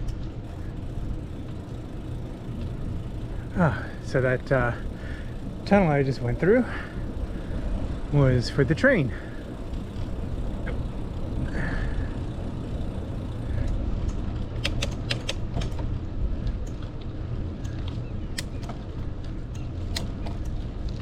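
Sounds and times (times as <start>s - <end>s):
bicycle tyres rolling: 0.0s - 21.0s
sharp clicks: 13.6s - 15.9s, 17.6s - 18.8s, 19.5s - 20.6s.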